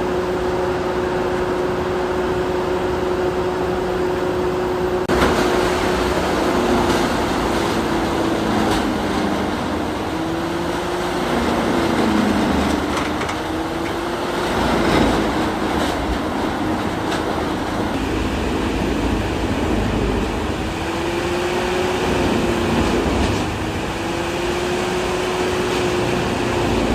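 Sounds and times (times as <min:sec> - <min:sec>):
excavator engine and hydraulics: 0:00.0 - 0:26.9.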